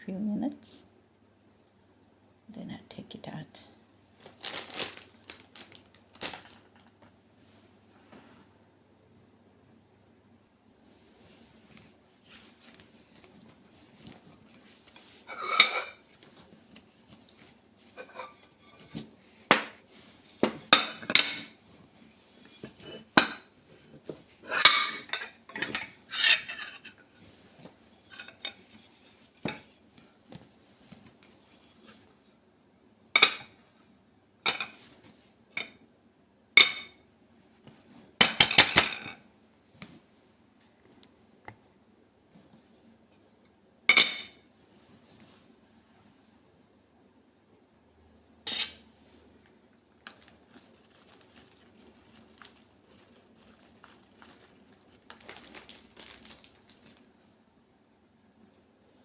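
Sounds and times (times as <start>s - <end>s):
dishes and cutlery clinking: 15.0s - 16.1s, 17.9s - 19.8s, 20.4s - 21.6s, 22.5s - 27.0s, 28.1s - 28.8s, 34.5s - 34.8s.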